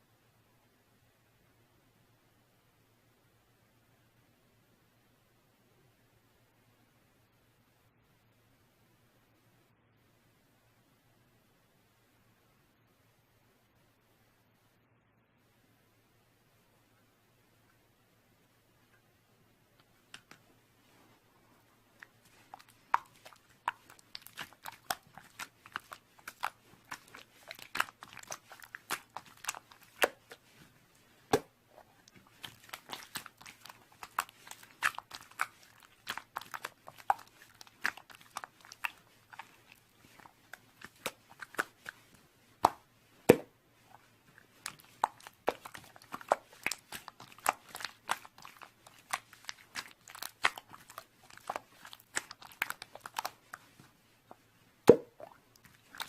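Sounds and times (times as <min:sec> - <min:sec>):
slime squeezed by hand: 0:22.0 - 0:30.7, 0:31.3 - 0:53.7, 0:54.9 - 0:56.0.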